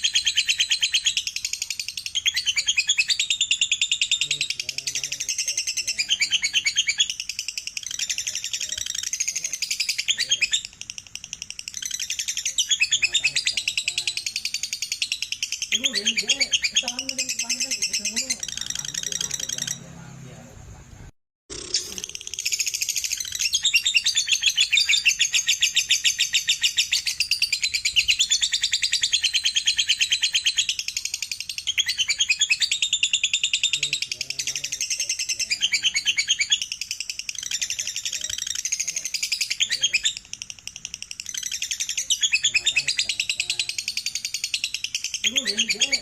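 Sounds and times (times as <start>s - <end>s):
lovebirds chattering trill: 0.0s - 46.0s.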